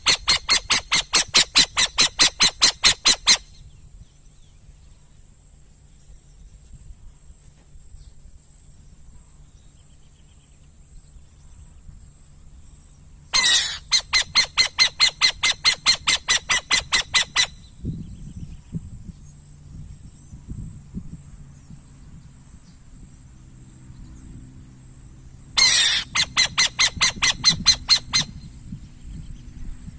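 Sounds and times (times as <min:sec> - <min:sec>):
bird harsh screech: 0:00.0 - 0:03.5, 0:13.4 - 0:17.6, 0:25.6 - 0:28.3.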